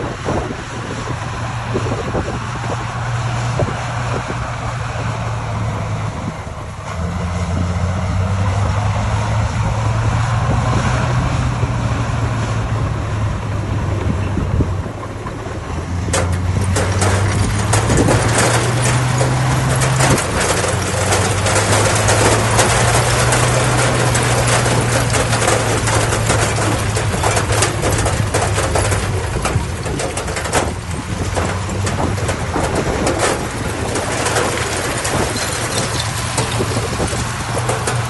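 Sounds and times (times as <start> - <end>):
heavy diesel engine under load: 0.0 - 38.0
clanking and rattling: 14.8 - 38.0.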